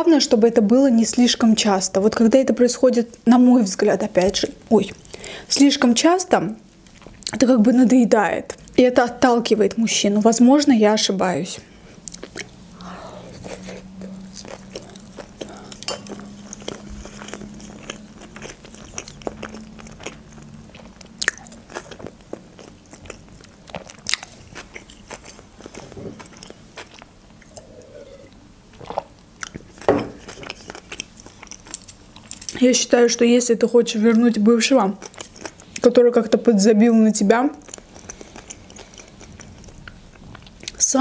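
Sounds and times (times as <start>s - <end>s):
chewing with wet mouth clicks: 12.0s - 12.8s, 13.4s - 27.7s, 28.8s - 32.6s, 35.0s - 35.9s, 37.5s - 40.8s.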